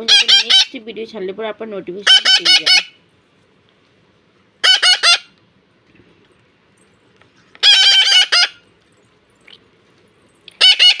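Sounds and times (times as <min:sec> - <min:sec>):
parrot screeching: 0:00.0 - 0:00.8, 0:02.0 - 0:03.0, 0:04.6 - 0:05.4, 0:07.6 - 0:08.6, 0:10.6 - 0:11.0.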